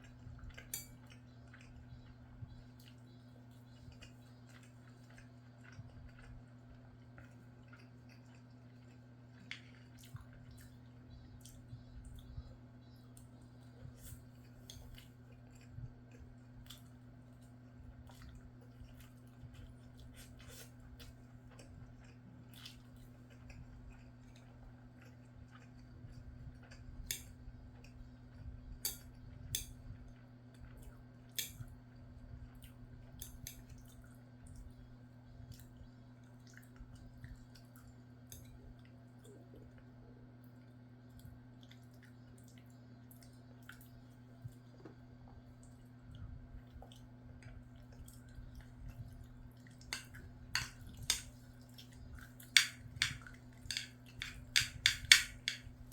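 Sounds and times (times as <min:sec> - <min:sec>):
person chewing food: 0:00.0 - 0:55.9
steady low hum: 0:00.0 - 0:55.9
small clicks and taps: 0:52.5 - 0:55.7.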